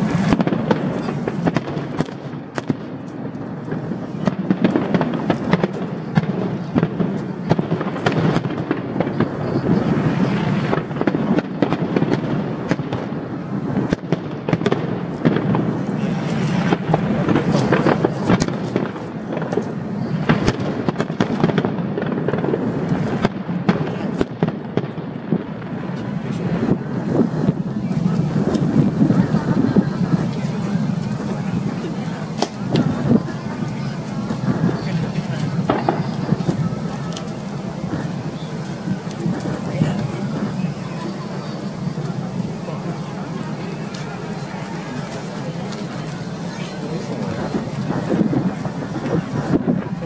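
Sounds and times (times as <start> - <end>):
fireworks bangs and crackling: 0.0 - 50.0
steady rumble: 14.9 - 20.4, 25.6 - 50.0.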